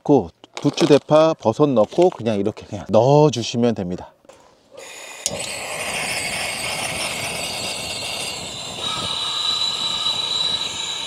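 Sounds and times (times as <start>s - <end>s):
gas stove burner hissing: 4.8s - 11.0s
high whistling tone: 4.8s - 11.0s.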